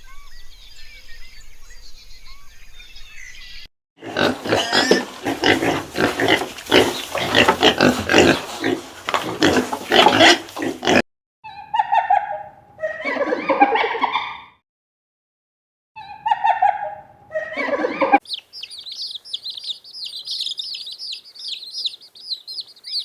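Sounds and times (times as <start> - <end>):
loud rapid animal calls: 4.0 - 11.0.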